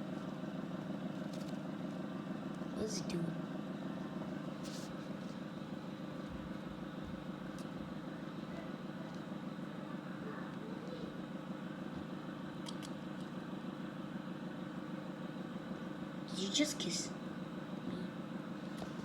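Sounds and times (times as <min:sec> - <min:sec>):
low background hum: 0:00.0 - 0:19.0
faint clicks: 0:12.6 - 0:13.3.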